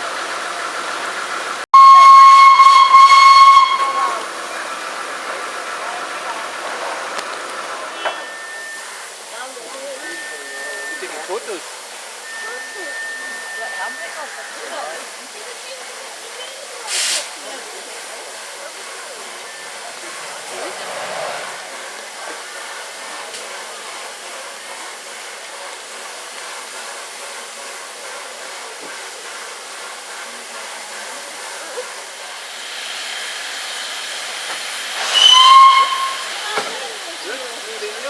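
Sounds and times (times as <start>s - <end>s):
steam hissing: 0.0s - 38.0s
steam locomotive whistle blast: 1.7s - 15.4s, 32.4s - 38.0s.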